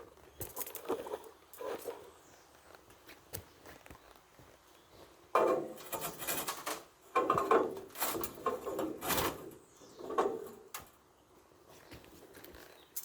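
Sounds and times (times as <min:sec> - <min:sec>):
hive stand scraping and knocking: 0:05.4 - 0:10.8.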